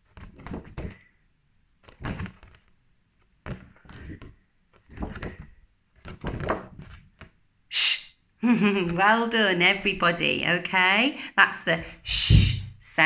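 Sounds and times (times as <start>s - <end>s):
objects knocking and bumping: 3.4s - 7.4s.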